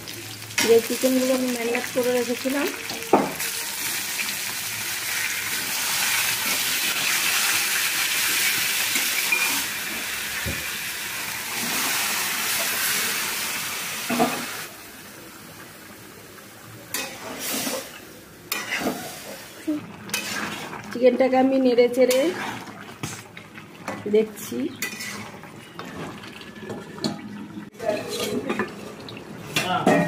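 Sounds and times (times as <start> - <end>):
chicken sizzling in oil: 0.0 - 20.8
metal spatula scraping pan: 18.5 - 19.3, 20.1 - 20.7, 24.8 - 25.4.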